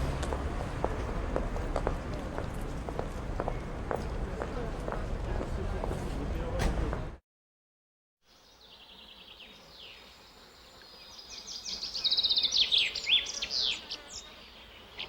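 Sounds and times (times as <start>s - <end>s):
songbirds singing: 8.3s - 15.0s.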